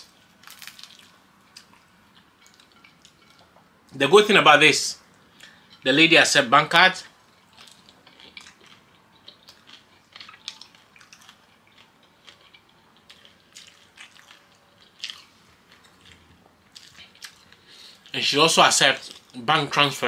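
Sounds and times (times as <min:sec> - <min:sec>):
person chewing food: 0:00.0 - 0:03.7, 0:05.1 - 0:05.8, 0:07.1 - 0:18.2.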